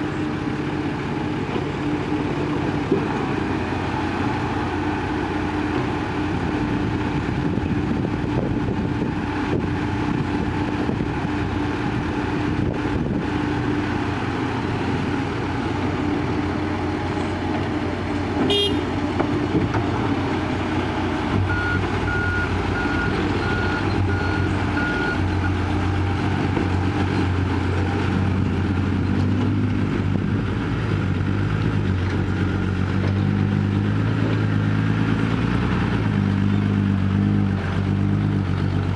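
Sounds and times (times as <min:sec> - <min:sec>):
heavy diesel engines running: 0:00.0 - 0:38.9
horn toot: 0:18.4 - 0:18.9.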